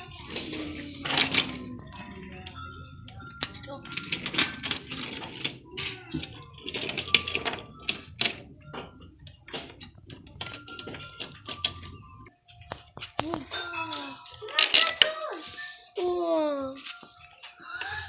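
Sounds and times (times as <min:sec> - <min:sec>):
toys clicking and clattering: 0:00.0 - 0:18.0.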